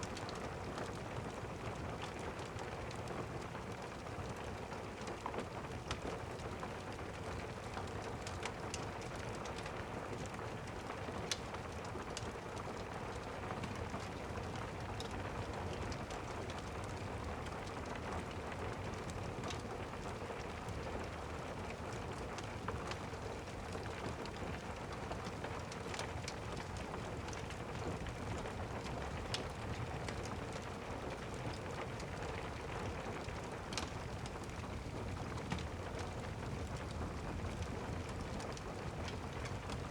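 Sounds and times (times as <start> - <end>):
steady rain: 0.0 - 39.9
log fire crackling: 10.7 - 39.9.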